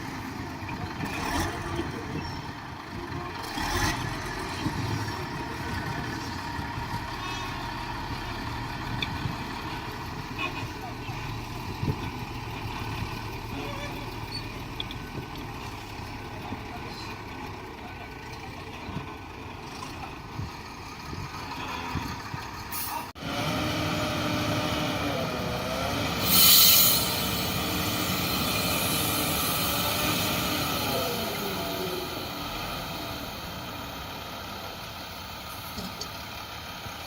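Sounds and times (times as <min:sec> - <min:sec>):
heavy diesel machinery running: 0:00.0 - 0:37.0
short loud hiss of air: 0:26.2 - 0:27.5.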